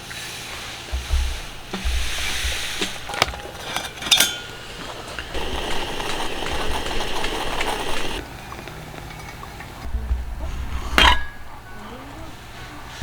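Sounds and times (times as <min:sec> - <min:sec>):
steady hiss: 0:00.0 - 0:08.2
dishes clinking and knocking: 0:00.8 - 0:08.2, 0:09.1 - 0:11.7.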